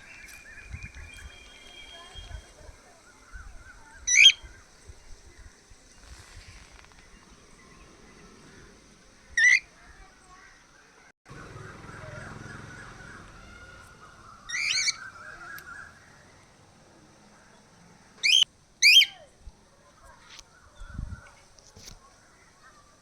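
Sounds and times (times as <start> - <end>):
soft bird chatter: 0.0 - 23.0
cockatiels calling: 11.6 - 16.0, 18.2 - 19.2.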